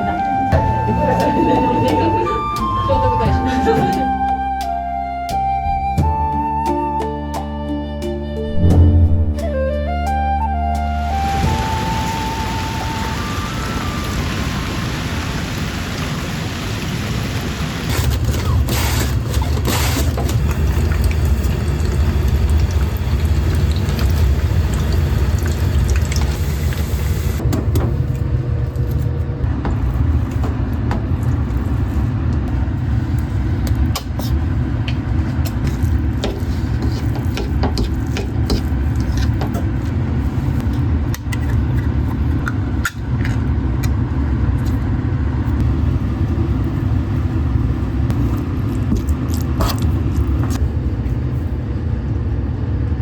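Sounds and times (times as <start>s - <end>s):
appliance running low rumble: 0.0s - 53.0s.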